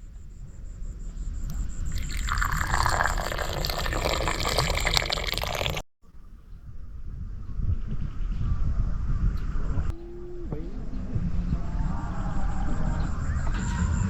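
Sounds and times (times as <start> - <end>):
liquid pouring: 1.9 - 5.8.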